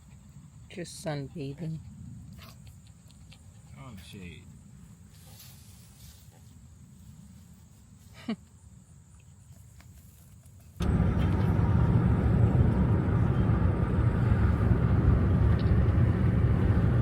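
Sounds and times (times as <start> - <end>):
car road and engine noise: 10.8 - 17.0.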